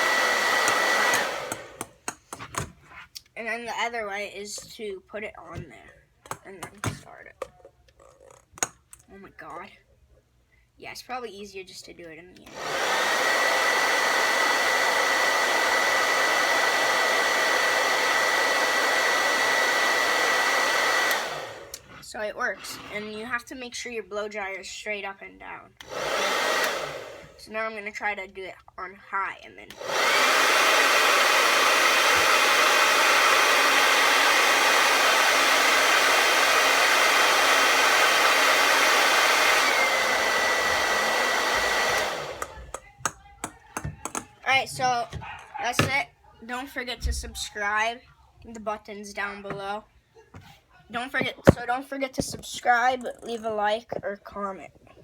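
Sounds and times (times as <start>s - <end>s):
blow dryer running: 0.0s - 2.7s, 12.5s - 22.0s, 25.8s - 27.4s, 29.7s - 46.0s.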